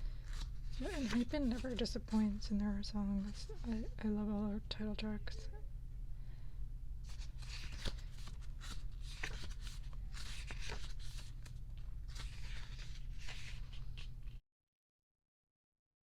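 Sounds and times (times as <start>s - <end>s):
low steady hum: 0.0s - 14.4s
pages turning and rustling: 0.1s - 2.4s, 7.0s - 14.4s.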